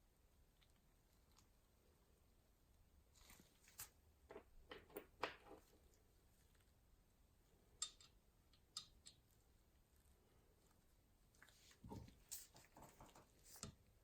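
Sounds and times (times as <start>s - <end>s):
clicks of small hard parts handled: 7.8s - 9.2s.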